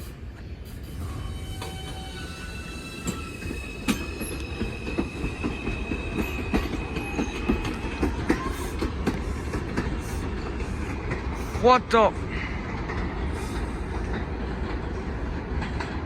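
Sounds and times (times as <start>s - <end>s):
subway train rumble: 0.0s - 16.0s
high wheel squeal: 0.8s - 8.9s
wheels clacking over rail joints: 1.5s - 16.0s.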